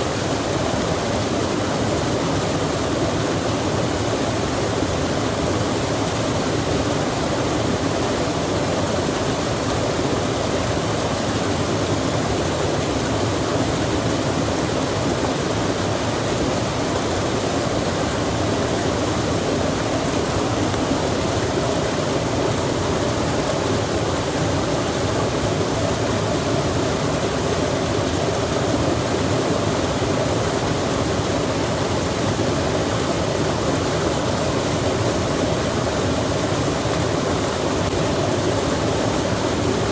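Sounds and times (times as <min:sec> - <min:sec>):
rushing flowing water: 0:00.0 - 0:39.9.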